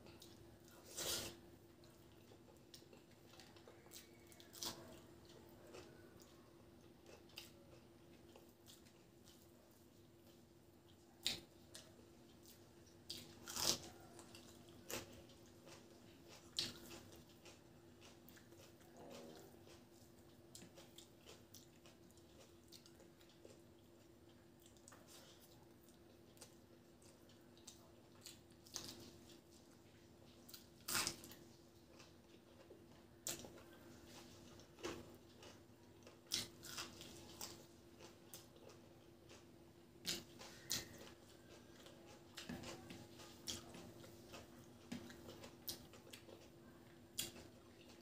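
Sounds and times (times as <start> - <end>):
faint low hum: 0.0 - 48.0
person chewing food: 0.0 - 48.0.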